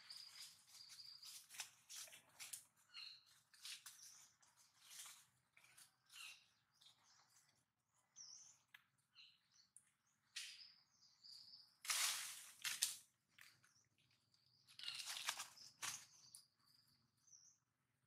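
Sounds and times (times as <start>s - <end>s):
small birds chirping: 0.0s - 18.0s
soft rustles: 0.2s - 2.7s, 3.5s - 6.3s.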